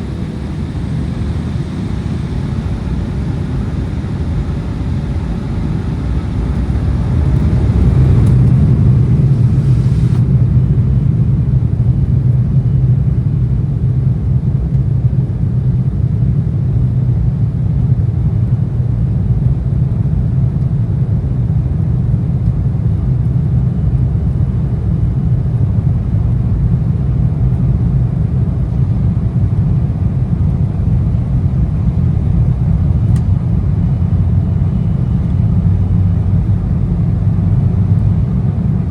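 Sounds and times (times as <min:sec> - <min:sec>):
airflow: 0:00.0 - 0:10.5
jet engines rumbling in cabin: 0:00.0 - 0:38.9.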